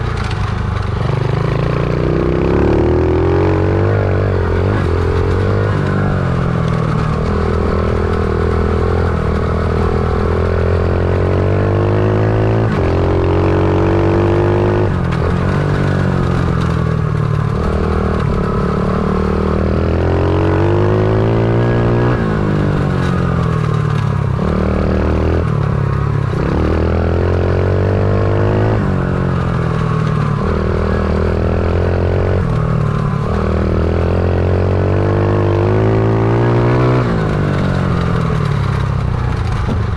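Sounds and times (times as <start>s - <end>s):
pit bike engine revving: 1.0s - 39.9s.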